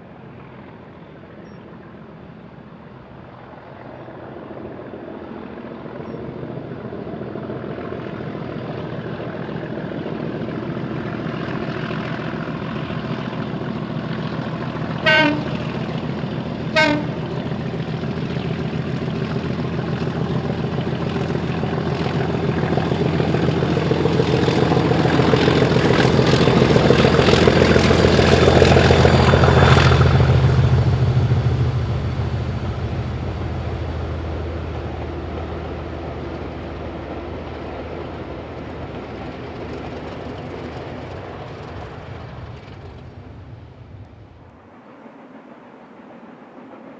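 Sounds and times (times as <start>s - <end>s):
steam train running past: 0.0s - 46.9s
locomotive whistle toots: 15.0s - 15.7s, 16.7s - 17.2s.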